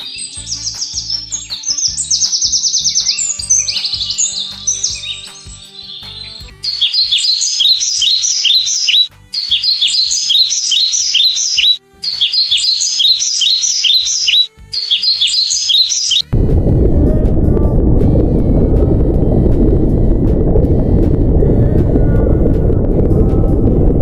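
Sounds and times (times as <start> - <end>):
small bird chirping rapidly: 0.0 - 16.3.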